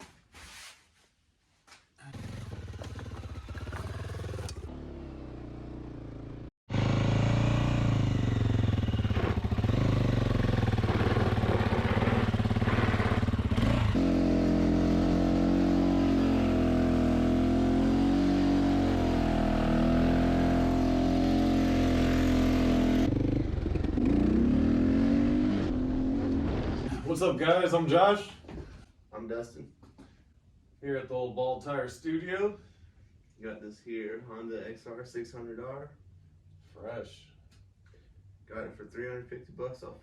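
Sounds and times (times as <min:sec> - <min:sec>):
dirt bike engine revving: 0:02.1 - 0:26.7.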